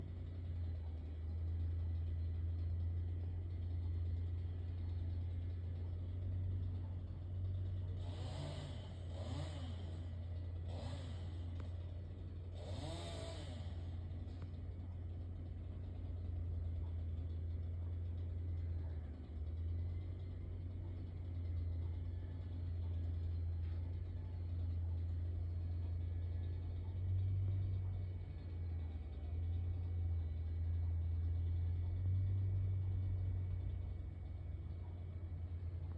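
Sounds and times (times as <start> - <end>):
engine revving: 7.9 - 14.6.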